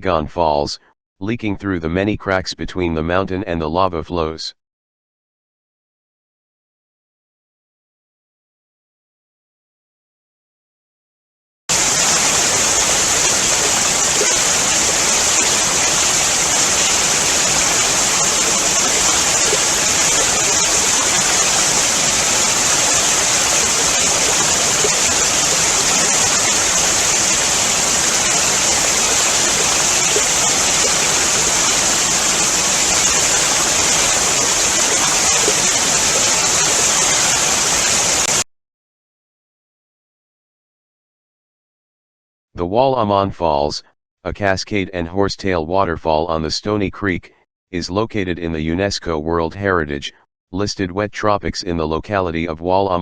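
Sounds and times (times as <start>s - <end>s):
waterfall rushing: 11.7s - 38.4s.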